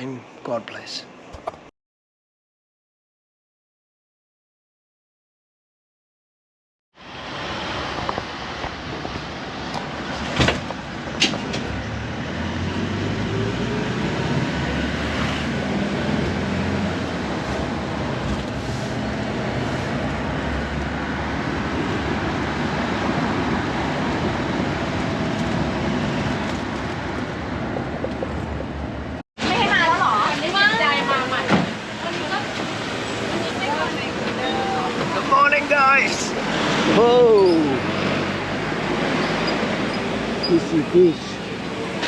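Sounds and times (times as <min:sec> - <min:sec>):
road vehicle rumble: 0:07.0 - 0:42.0.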